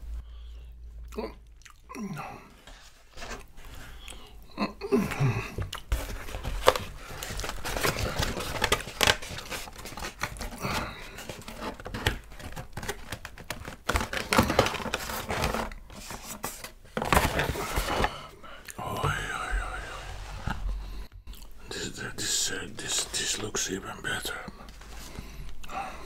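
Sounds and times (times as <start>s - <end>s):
pizza being bitten and chewed: 0.9s - 2.3s.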